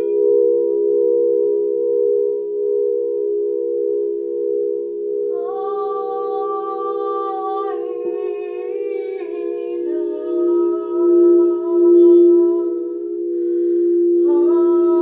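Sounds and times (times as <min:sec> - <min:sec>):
drone of sustained tones: 0:00.0 - 0:15.0
person humming long notes: 0:05.3 - 0:15.0.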